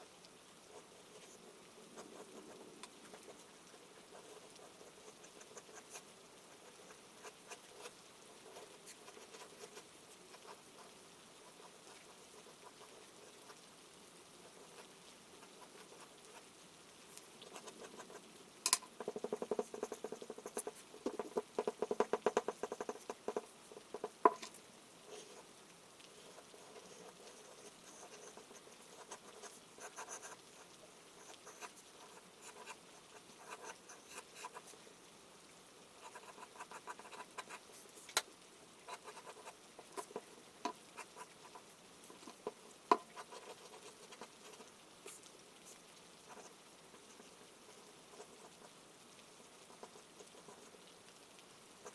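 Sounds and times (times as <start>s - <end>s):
soft rain patter: 0.0s - 51.9s
charcoal scratching on paper: 19.0s - 24.2s, 38.9s - 45.2s.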